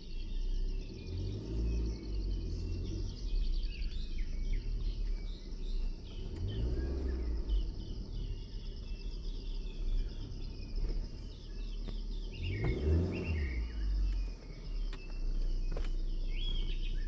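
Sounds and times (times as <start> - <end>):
small birds chirping: 0.0 - 17.0
insects chirring: 5.0 - 17.0.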